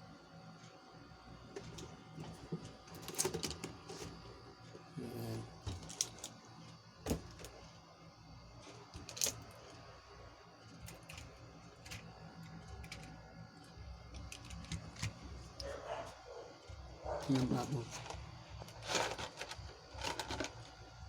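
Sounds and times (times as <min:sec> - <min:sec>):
plastic toys clicking and knocking: 0:10.7 - 0:13.2, 0:14.2 - 0:15.7, 0:17.4 - 0:20.7.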